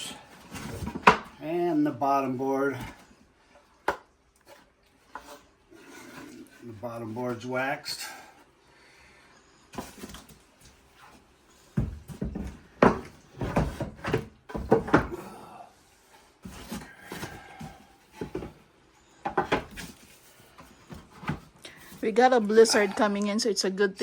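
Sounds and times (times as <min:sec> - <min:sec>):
wooden parts knocking and clattering: 0:00.0 - 0:01.4, 0:11.8 - 0:15.3, 0:16.4 - 0:18.6, 0:19.2 - 0:22.0.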